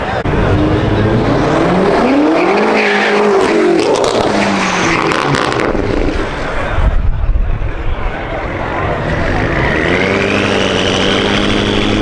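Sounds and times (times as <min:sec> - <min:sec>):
car engine revving hard: 0:00.3 - 0:06.4, 0:09.0 - 0:12.0.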